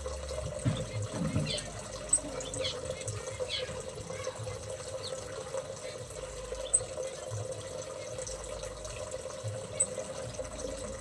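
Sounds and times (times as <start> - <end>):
trickling water: 0.0 - 11.0
small birds chirping: 0.6 - 8.4.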